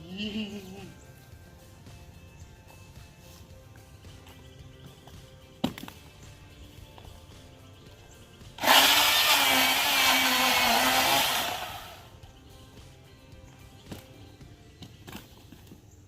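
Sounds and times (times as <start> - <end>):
electric chainsaw cutting wood: 8.6 - 12.1.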